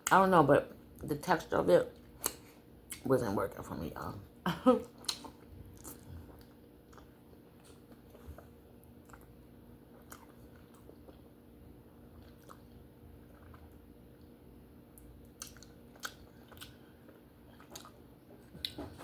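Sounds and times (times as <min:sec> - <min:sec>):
close chewing and biting: 0:04.9 - 0:14.3, 0:15.0 - 0:18.9.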